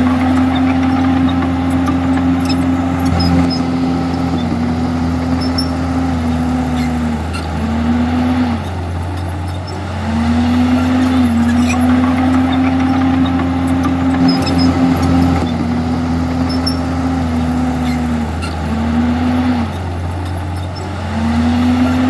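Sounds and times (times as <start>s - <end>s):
bulldozer diesel engine under load: 0.0s - 22.0s.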